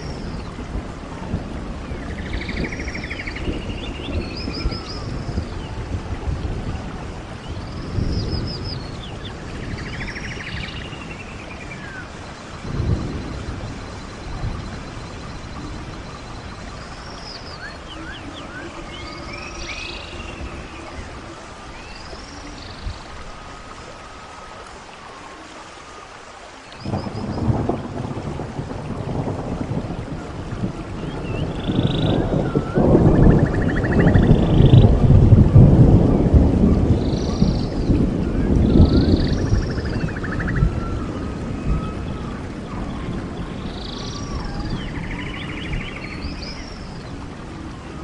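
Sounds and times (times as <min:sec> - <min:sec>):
birds chirping and trilling: 0:07.3 - 0:24.5, 0:31.0 - 0:34.9, 0:36.9 - 0:47.2.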